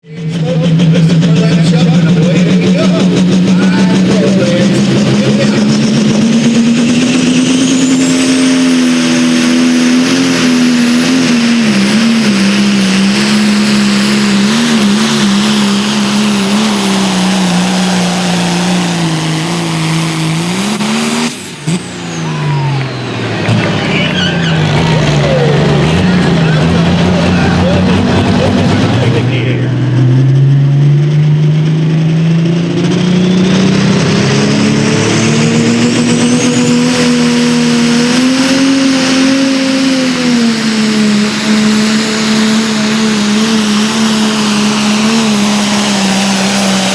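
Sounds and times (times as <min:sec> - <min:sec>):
diesel tractor engine at full throttle: 0:00.0 - 0:46.9.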